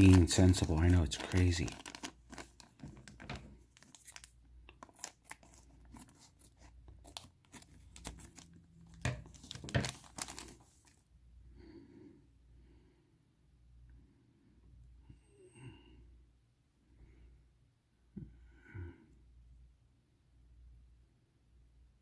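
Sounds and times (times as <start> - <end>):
plastic bag crinkling and tearing: 0.0 - 11.0.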